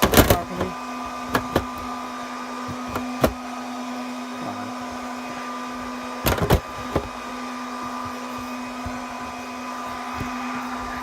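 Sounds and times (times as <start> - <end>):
server cooling fans whirring: 0.0 - 11.0.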